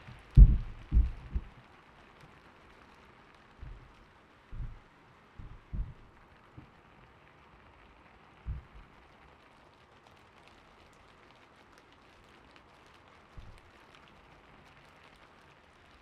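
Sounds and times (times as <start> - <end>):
soft low thumps: 0.0 - 1.6, 3.6 - 3.9, 4.5 - 4.8, 5.4 - 6.1, 8.5 - 8.8, 13.4 - 13.6
gentle rain falling: 0.0 - 16.0.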